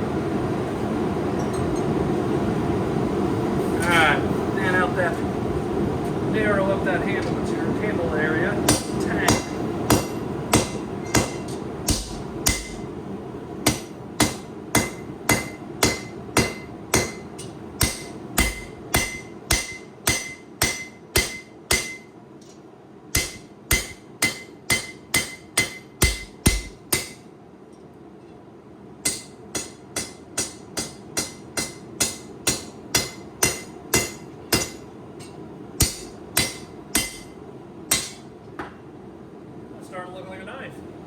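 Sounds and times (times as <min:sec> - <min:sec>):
hammer ringing on anvil: 0:08.7 - 0:12.8, 0:13.7 - 0:22.1, 0:23.2 - 0:27.2, 0:29.0 - 0:38.2.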